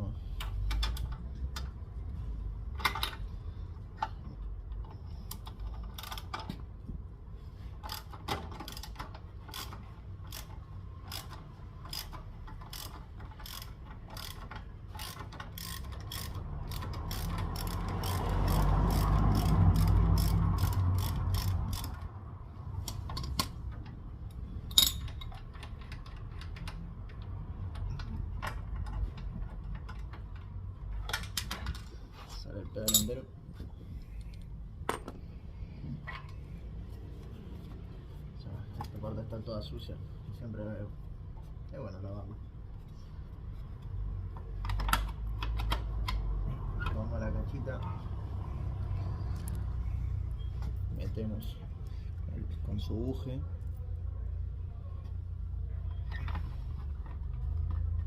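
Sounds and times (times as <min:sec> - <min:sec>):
ratchet wrench clicking: 0:07.8 - 0:22.1.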